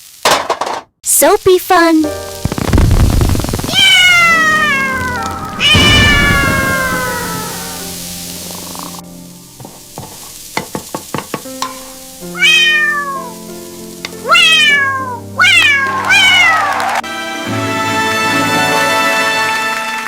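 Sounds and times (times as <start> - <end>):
cat meowing: 3.7 - 8.9, 12.2 - 13.5, 14.2 - 16.9.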